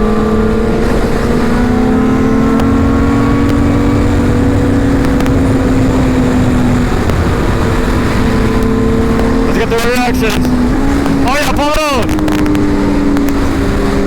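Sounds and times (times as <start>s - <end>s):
motorcycle engine running: 0.0s - 14.0s
wind rumble on microphone: 0.0s - 14.0s.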